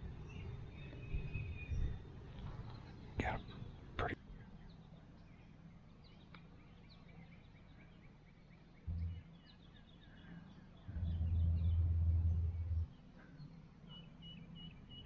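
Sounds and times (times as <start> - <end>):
small birds chirping: 0.0 - 15.0
deep low rumble: 8.9 - 9.2, 10.9 - 12.9.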